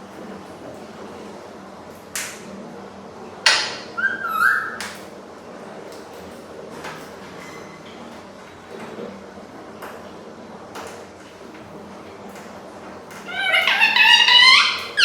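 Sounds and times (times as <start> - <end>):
parrot squawk: 3.5 - 4.9, 13.2 - 15.0
parrot whistling: 3.6 - 5.0, 13.3 - 15.0.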